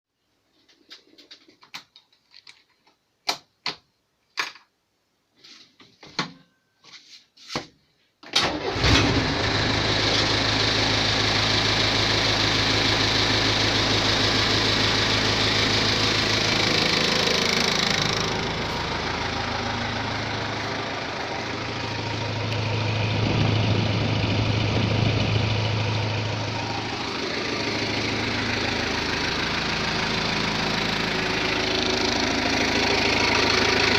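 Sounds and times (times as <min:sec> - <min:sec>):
diesel engine starting and clattering: 0:08.3 - 0:33.9.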